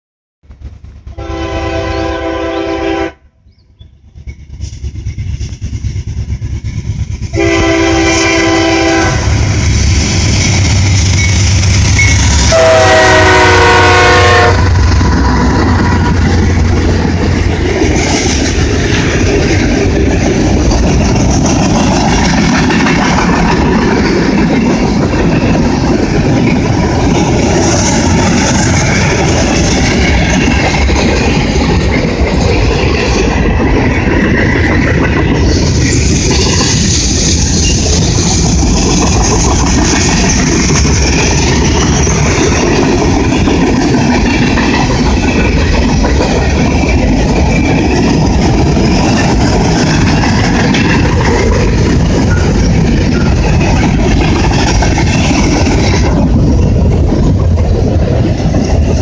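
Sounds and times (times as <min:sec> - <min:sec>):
freight train rolling: 0:00.4 - 0:59.0
locomotive air horn blasts: 0:01.1 - 0:03.4, 0:07.4 - 0:09.5, 0:12.5 - 0:14.8.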